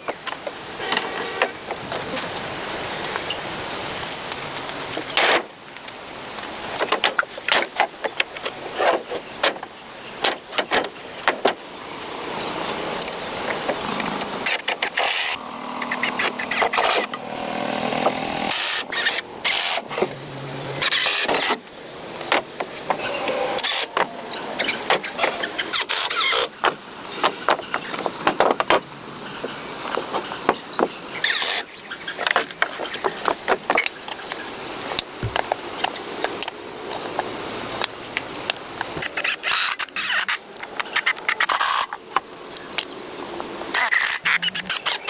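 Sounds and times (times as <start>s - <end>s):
sharp knocks on timber: 35.2s - 35.6s.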